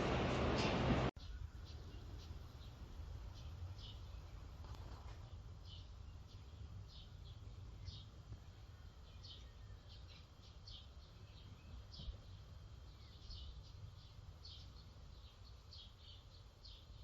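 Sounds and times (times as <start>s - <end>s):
low rumble: 0.0s - 1.1s
small birds chirping: 0.0s - 17.0s.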